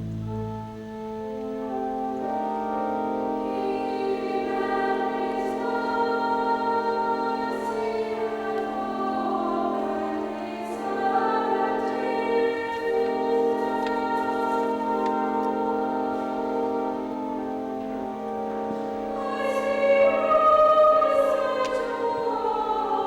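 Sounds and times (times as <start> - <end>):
church choir singing: 0.0 - 23.0
organ chords: 0.0 - 23.0.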